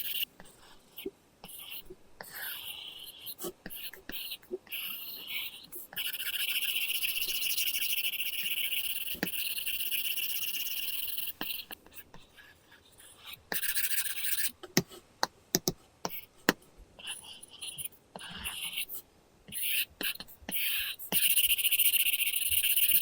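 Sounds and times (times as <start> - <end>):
stylus scratching on screen: 0.0 - 14.9, 17.0 - 23.0
stylus tapping on screen: 14.8 - 16.6.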